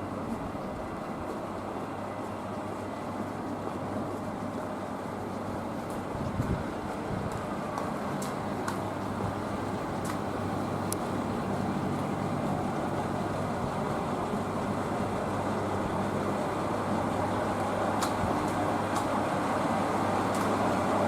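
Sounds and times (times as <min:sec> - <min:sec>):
train engine hum: 0:00.0 - 0:21.0
rolling wheel noise: 0:08.4 - 0:19.0
faint clicks: 0:09.4 - 0:12.3.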